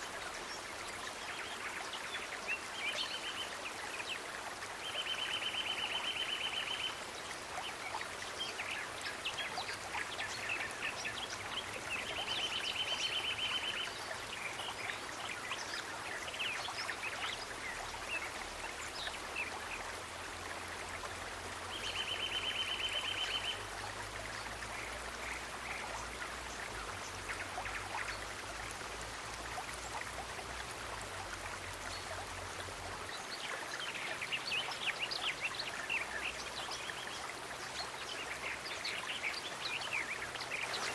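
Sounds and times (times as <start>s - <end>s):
running water: 0.0s - 40.9s.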